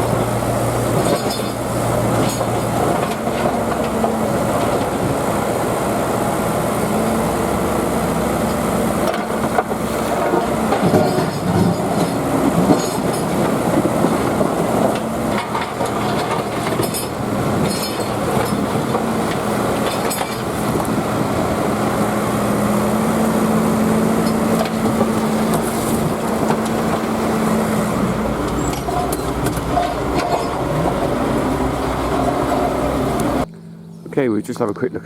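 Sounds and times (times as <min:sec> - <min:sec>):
digger engine running: 0:00.0 - 0:34.3
metallic clanks: 0:09.0 - 0:21.0, 0:28.4 - 0:33.4.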